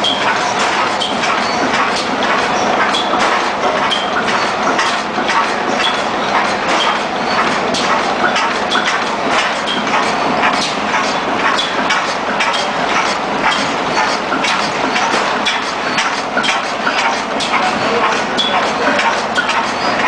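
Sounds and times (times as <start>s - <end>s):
oil engine clattering: 0.0s - 20.0s.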